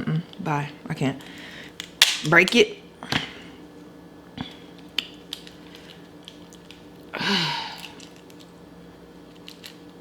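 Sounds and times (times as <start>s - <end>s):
crab shell cracking: 4.8s - 7.1s.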